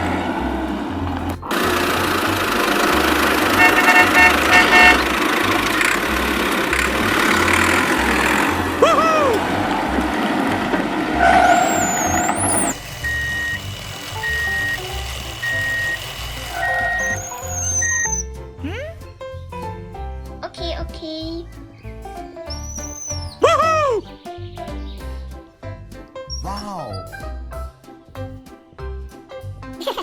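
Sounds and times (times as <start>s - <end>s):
motor vehicle running loudly: 0.0s - 18.3s
music with bass beat: 0.0s - 22.5s
horn-like beeps: 3.4s - 5.2s, 11.2s - 13.6s, 14.2s - 18.2s.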